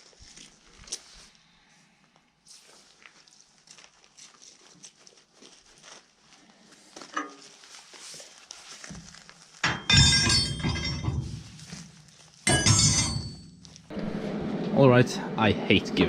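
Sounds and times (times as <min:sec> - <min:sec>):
metal tools clattering: 0:09.6 - 0:11.8, 0:12.4 - 0:13.7
tools clicking and rustling: 0:09.6 - 0:13.9.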